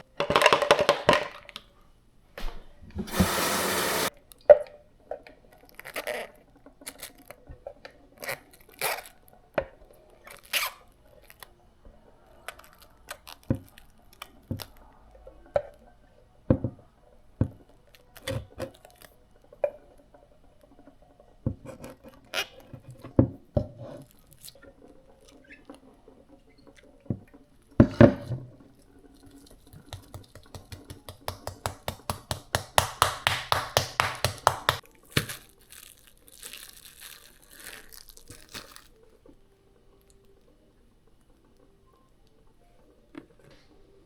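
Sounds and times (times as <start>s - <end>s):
utensils knocking: 29.7s - 34.8s.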